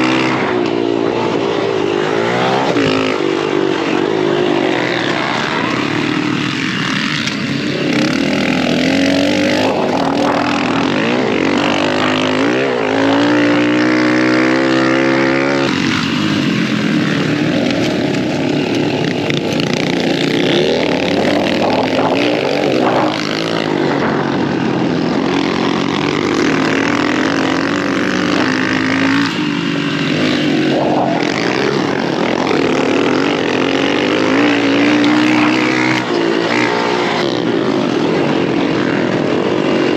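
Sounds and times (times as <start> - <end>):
dirt bike engine revving: 0.0 - 39.9
wind noise on microphone: 17.1 - 34.4.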